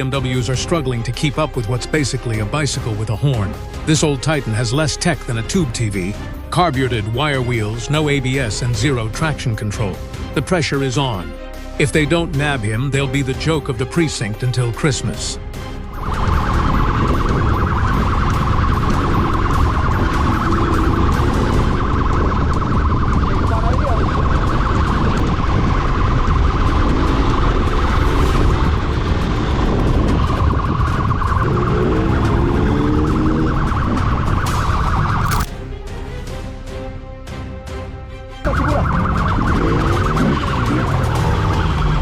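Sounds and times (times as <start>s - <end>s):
police siren pulsing: 15.9s - 28.4s, 30.2s - 36.0s, 38.4s - 42.0s.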